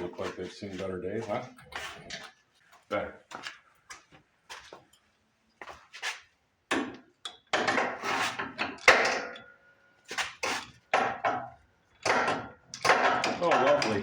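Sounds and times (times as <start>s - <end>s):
hand tools clanking on steel: 10.4s - 14.0s.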